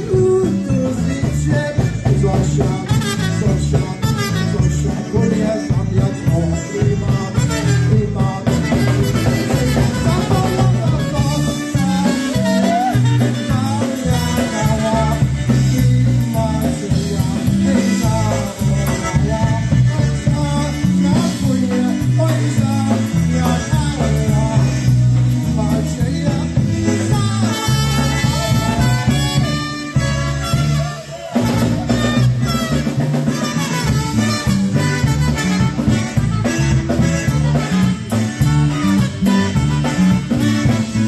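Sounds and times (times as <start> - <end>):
live dance band playing: 0.0 - 41.0
steady bass line: 0.0 - 41.0.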